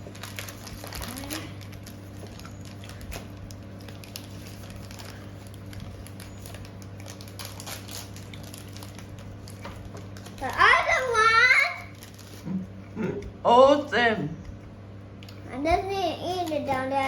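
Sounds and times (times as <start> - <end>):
snack packages clicking and rustling: 0.0 - 11.0
steady low hum: 0.0 - 17.0.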